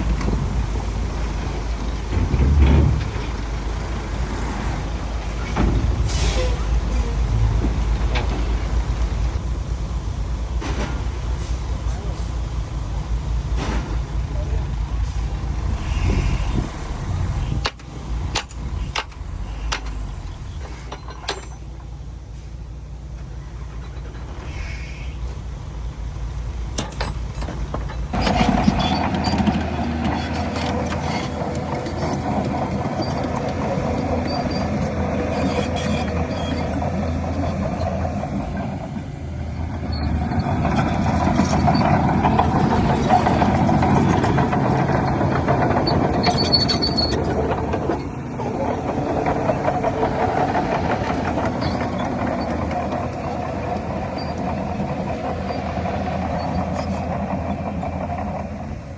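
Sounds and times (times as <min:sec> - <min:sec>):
engine knocks: 0:00.0 - 0:06.1, 0:25.3 - 0:58.9
bulldozer diesel engine under load: 0:00.0 - 0:58.9.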